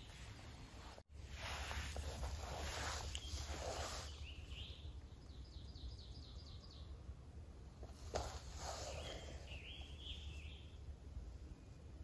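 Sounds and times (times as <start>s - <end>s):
low steady background rumble: 0.0s - 12.0s
songbird singing: 3.0s - 7.5s, 8.1s - 12.0s.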